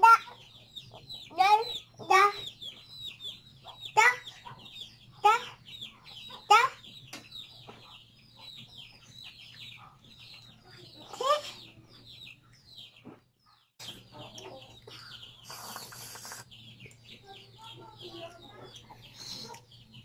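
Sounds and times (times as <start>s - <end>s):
child's voice: 0.0s - 0.4s, 1.2s - 2.6s, 3.9s - 4.4s, 5.2s - 5.6s, 6.3s - 6.8s, 10.6s - 11.9s, 14.0s - 15.2s, 17.2s - 19.7s
birds peeping: 0.0s - 20.0s.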